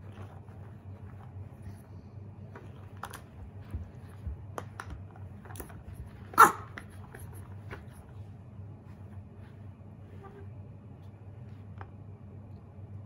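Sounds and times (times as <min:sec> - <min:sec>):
puppy barking: 0:06.3 - 0:06.9.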